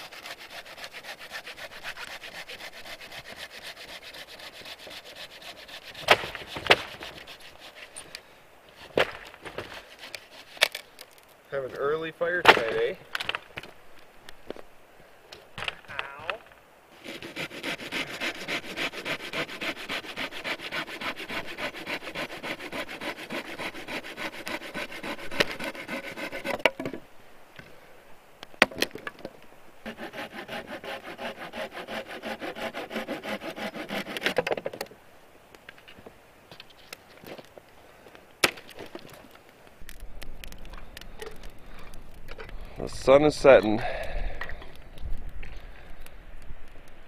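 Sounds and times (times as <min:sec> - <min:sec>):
hand saw cutting wood: 0:00.0 - 0:08.1, 0:08.8 - 0:10.8, 0:17.0 - 0:27.0, 0:29.8 - 0:34.7.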